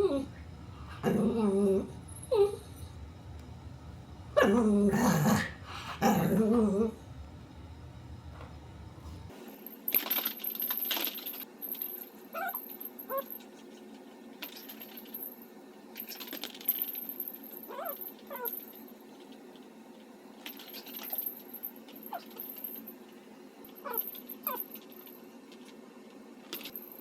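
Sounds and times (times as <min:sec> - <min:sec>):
dog whining: 0:00.0 - 0:02.9, 0:12.4 - 0:13.3, 0:17.7 - 0:18.6, 0:23.8 - 0:24.7.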